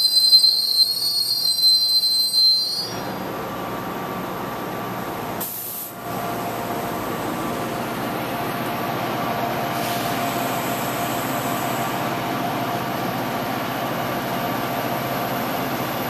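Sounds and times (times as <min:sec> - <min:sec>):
train wheel squeal: 0:00.0 - 0:03.2
train cars rumbling on rails: 0:00.0 - 0:16.0.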